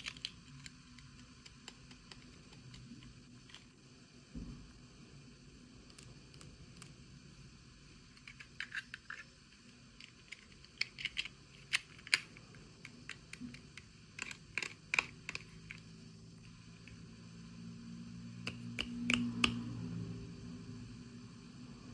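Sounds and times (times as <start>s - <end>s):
plastic toy pieces clicking: 0.0s - 3.7s, 10.0s - 15.8s
low hum: 15.7s - 21.9s.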